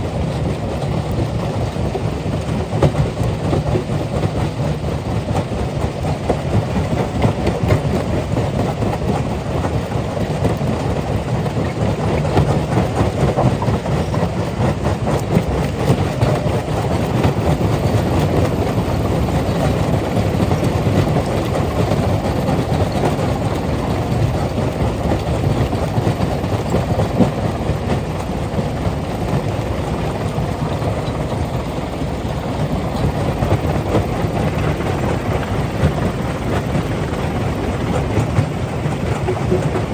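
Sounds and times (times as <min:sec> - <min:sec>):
rock crusher rumbling: 0:15.6 - 0:39.9.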